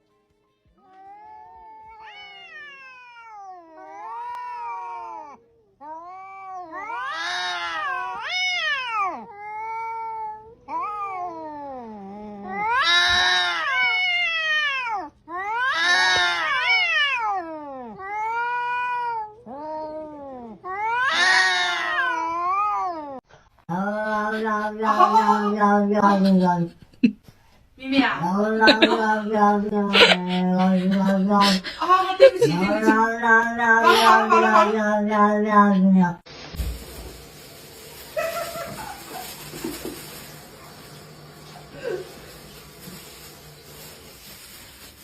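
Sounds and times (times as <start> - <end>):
cat meowing: 0.8 - 23.2.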